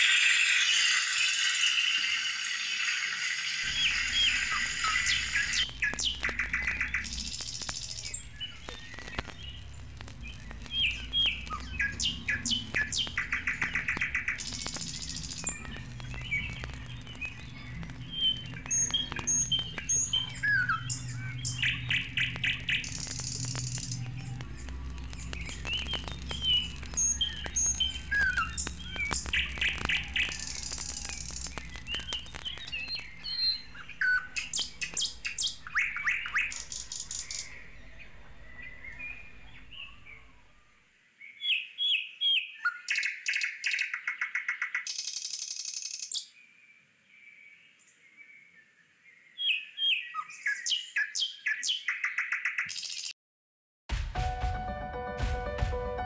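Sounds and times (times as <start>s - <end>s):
high bird trilling: 0.0s - 9.7s, 10.3s - 40.5s
small birds chirping: 0.0s - 53.2s.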